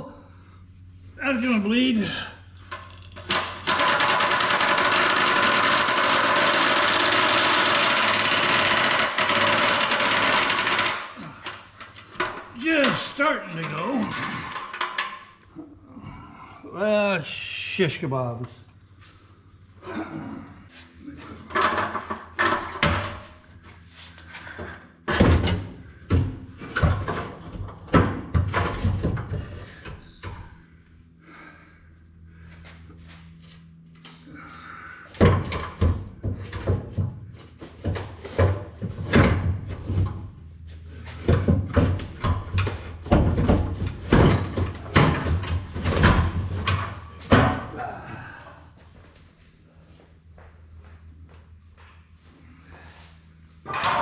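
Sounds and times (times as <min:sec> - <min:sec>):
low steady hum: 0:00.0 - 0:03.7, 0:11.0 - 0:54.0
impact wrench hammering: 0:03.3 - 0:11.3
metal clanks of hand tools: 0:53.6 - 0:54.0.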